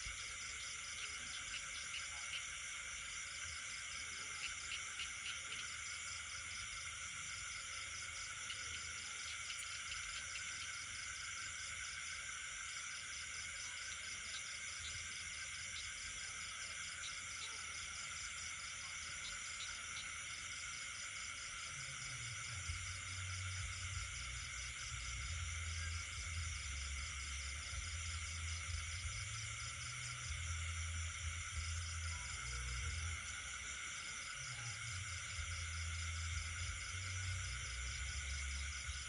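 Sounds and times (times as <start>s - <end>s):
crickets and insects trilling: 0.0s - 39.0s
frogs calling: 0.0s - 39.0s.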